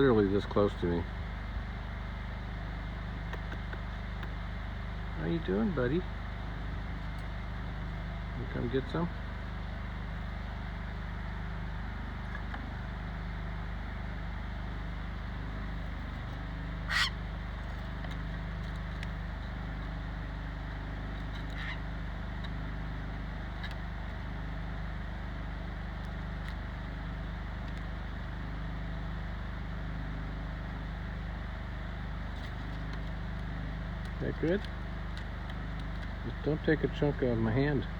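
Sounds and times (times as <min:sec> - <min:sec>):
bird call: 0:16.8 - 0:17.2.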